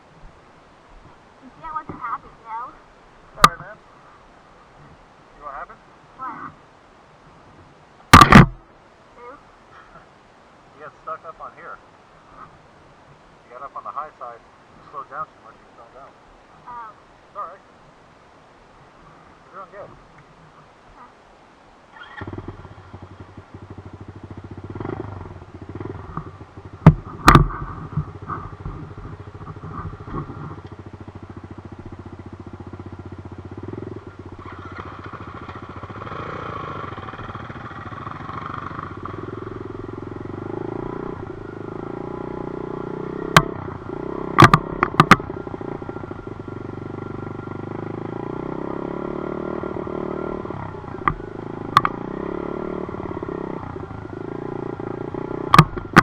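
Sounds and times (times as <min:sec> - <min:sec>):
dirt bike engine running: 0:08.1 - 0:08.7, 0:22.0 - 0:56.0
loud sharp knocks: 0:08.2 - 0:08.6, 0:26.8 - 0:28.1, 0:44.4 - 0:45.3.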